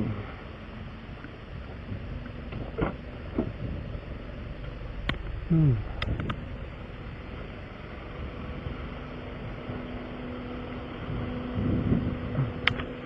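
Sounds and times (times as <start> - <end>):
vehicle engine idling: 0.0 - 13.0
sharp clicks: 12.6 - 12.9.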